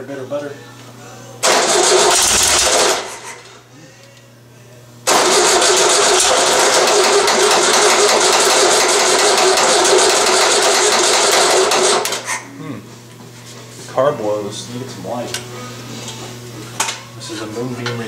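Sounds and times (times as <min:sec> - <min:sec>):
engine cranking by starter: 0:01.4 - 0:03.5, 0:05.1 - 0:12.4.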